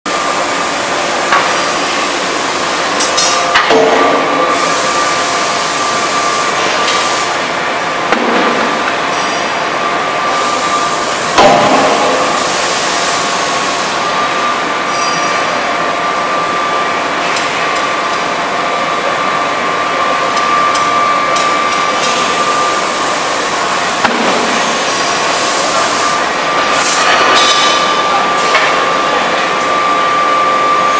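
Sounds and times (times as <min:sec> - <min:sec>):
steady machine drone: 0:00.1 - 0:30.9
forging hammer striking: 0:11.4 - 0:12.4.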